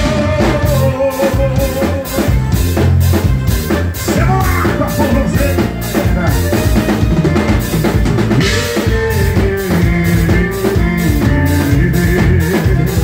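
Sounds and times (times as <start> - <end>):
drum kit beat: 0.0 - 13.0
live band playing: 0.0 - 13.0.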